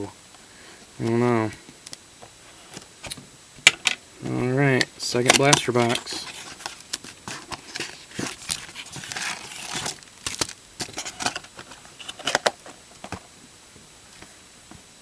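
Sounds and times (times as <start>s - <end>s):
plastic wrap crinkling and tearing: 5.2s - 12.6s.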